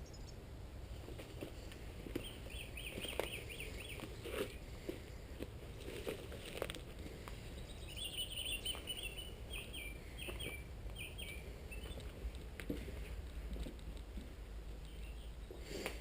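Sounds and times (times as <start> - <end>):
small bird chirping: 0.0 - 0.4, 2.1 - 4.6, 5.9 - 12.3, 14.7 - 15.8
low steady rumble: 0.0 - 15.7.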